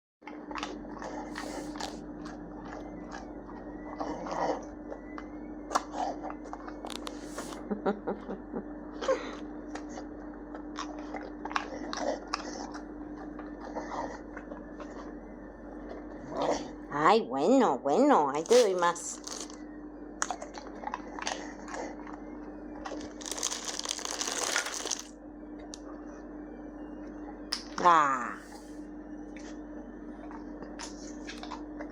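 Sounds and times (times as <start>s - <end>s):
dog crunching food: 0.2s - 5.1s, 5.7s - 7.4s, 8.9s - 15.1s, 18.4s - 19.6s, 20.2s - 22.2s, 22.8s - 25.2s, 30.2s - 31.9s
faint hum: 0.2s - 31.9s.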